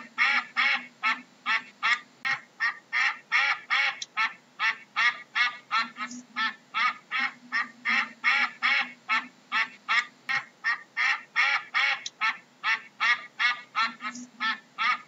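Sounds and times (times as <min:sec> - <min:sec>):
duck quacking: 0:00.0 - 0:15.0.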